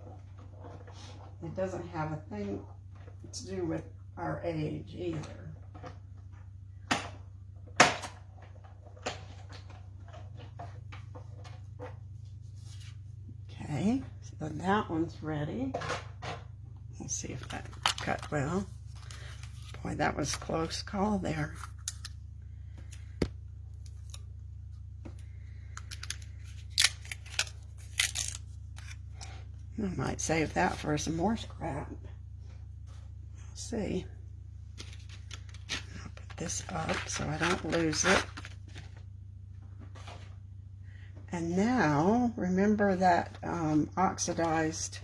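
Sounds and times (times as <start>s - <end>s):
low steady hum: 0.0s - 45.0s
paper rustling: 17.4s - 20.8s, 34.7s - 39.0s.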